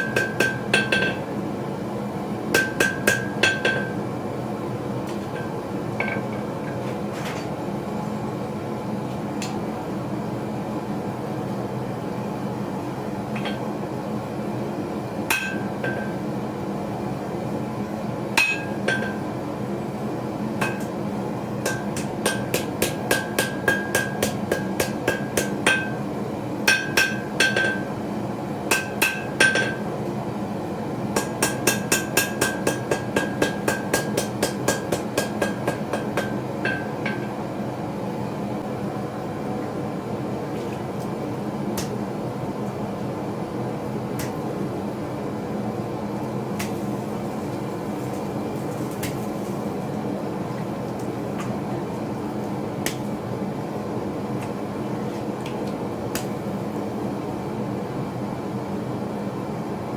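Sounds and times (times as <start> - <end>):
hammer striking steel on anvil: 0.0 - 1.3, 2.6 - 4.0, 15.3 - 16.2, 18.4 - 19.3, 20.6 - 21.0, 21.6 - 26.0, 26.7 - 27.9, 28.7 - 29.9, 31.2 - 37.4.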